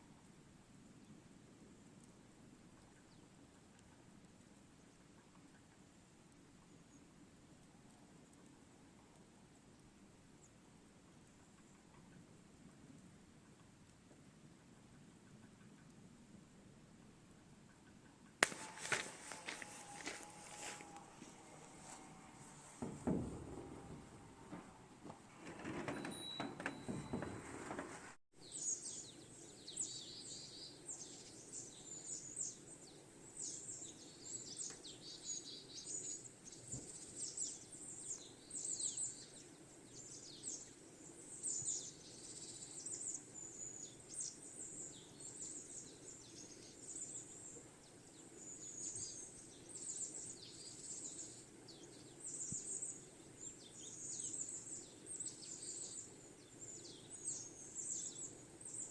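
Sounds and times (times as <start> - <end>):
rustling: 18.4 - 28.2
small birds chirping: 28.4 - 58.9.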